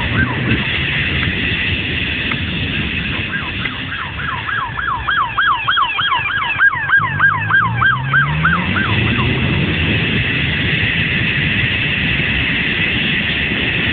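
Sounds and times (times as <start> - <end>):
police siren yelping: 0.0 - 1.1, 2.6 - 10.0
motor speeding up: 0.0 - 13.6.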